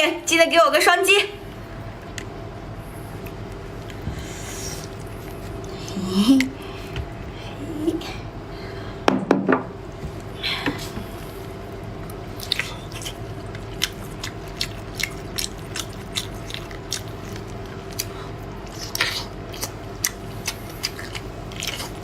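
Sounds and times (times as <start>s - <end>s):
faint steady hum: 0.0s - 22.0s
wet chewing smacks: 12.3s - 22.0s.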